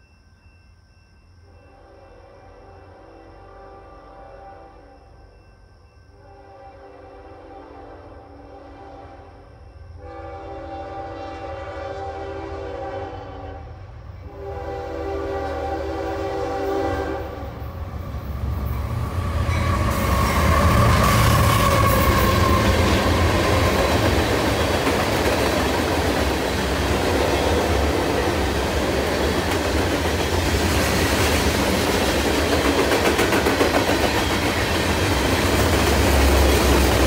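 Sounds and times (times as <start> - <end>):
train rumbling past: 0.0 - 37.0
train horn blasts: 1.5 - 5.4, 6.1 - 17.7
wheels clacking over rails: 19.4 - 37.0.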